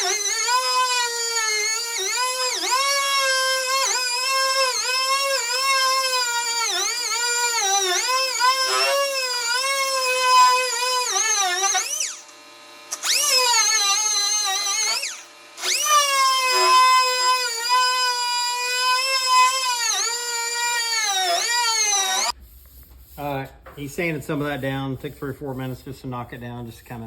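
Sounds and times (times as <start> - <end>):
air sander whining on metal: 0.0 - 23.2.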